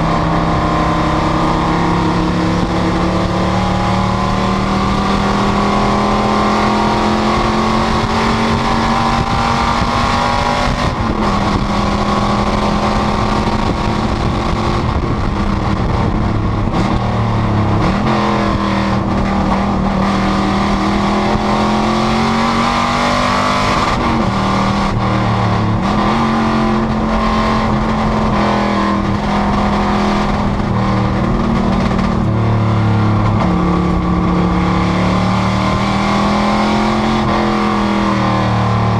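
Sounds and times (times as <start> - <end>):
race car engine at speed: 0.0 - 38.9.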